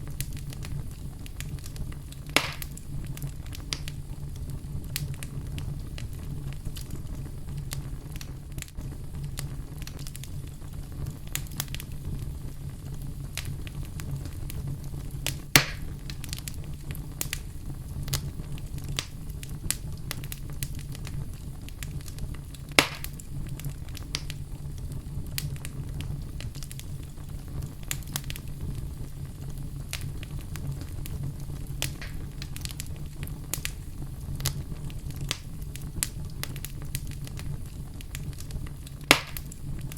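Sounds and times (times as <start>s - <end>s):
fire crackling: 0.0s - 39.9s
low rumble of flames: 0.0s - 39.9s
sharp pops: 2.4s - 2.8s, 15.6s - 15.9s, 22.8s - 23.2s, 39.1s - 39.5s.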